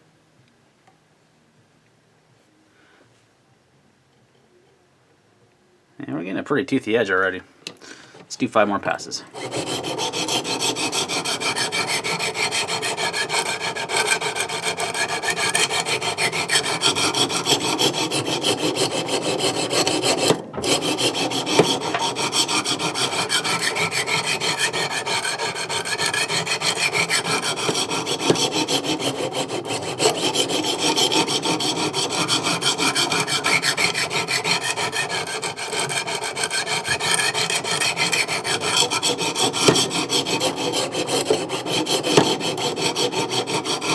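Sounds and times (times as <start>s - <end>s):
sharpening stones rasping on knife: 9.4s - 43.9s.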